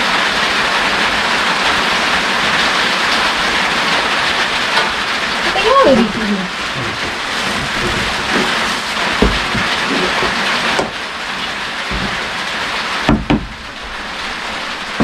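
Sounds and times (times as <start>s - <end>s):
steady rain falling: 0.0s - 15.0s
short knocks: 6.8s - 11.0s, 13.1s - 13.6s.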